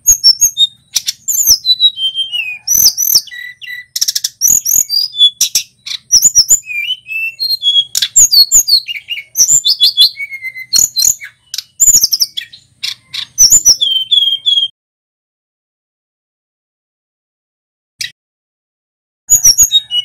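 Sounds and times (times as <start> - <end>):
bird singing chirps and whistles: 0.0 - 14.7, 19.3 - 20.0.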